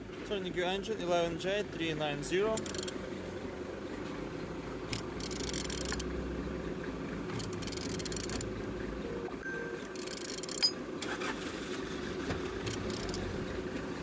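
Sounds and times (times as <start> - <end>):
low background hum: 0.0 - 14.0
engine turned by hand with tool: 2.4 - 3.0, 4.8 - 6.2, 7.2 - 8.6, 9.8 - 14.0.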